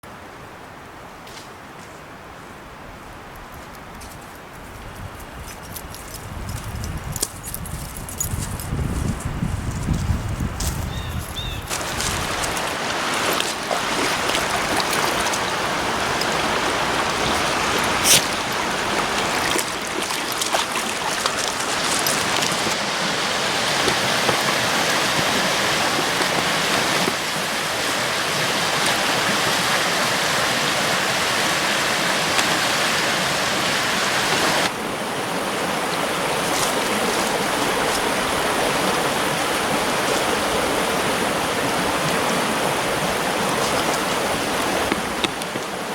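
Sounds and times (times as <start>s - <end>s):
creek water rushing: 11.0s - 45.9s.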